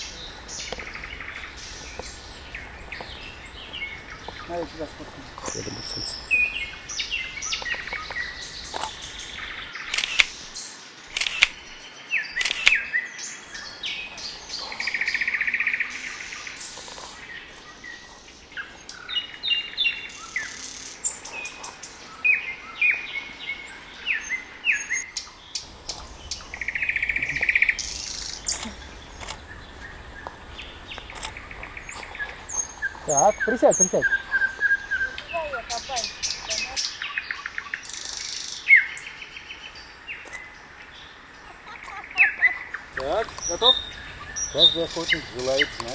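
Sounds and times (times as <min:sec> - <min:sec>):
birds singing: 0:00.0 - 0:45.9
sharp clicks: 0:09.8 - 0:11.6, 0:12.4 - 0:12.8, 0:25.6 - 0:34.4, 0:43.0 - 0:43.8, 0:44.4 - 0:45.9
buzzy bird trill: 0:25.6 - 0:37.0, 0:41.9 - 0:45.9.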